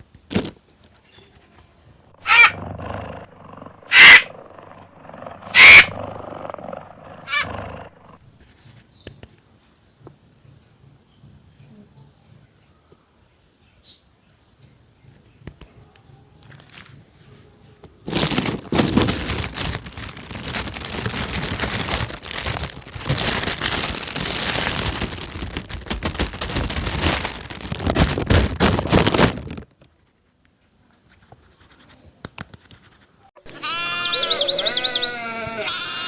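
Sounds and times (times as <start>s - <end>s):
harsh noisy animal calls: 2.2s - 8.2s, 18.1s - 28.2s, 33.4s - 36.0s
rapid pitched animal calls: 2.2s - 8.2s, 33.4s - 36.0s.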